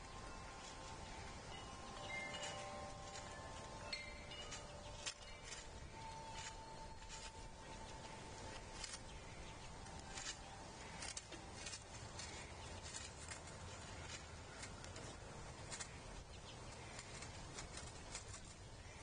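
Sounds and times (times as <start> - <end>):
low background hiss: 0.0 - 19.0.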